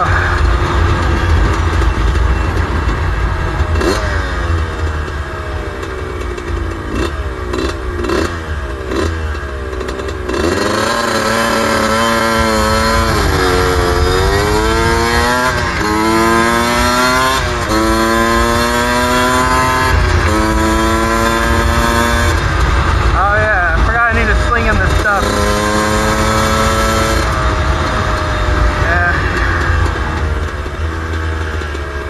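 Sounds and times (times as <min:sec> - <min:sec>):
wind rumble on microphone: 0:00.0 - 0:05.6, 0:11.7 - 0:31.3
two-stroke motorcycle engine revving: 0:00.0 - 0:32.0.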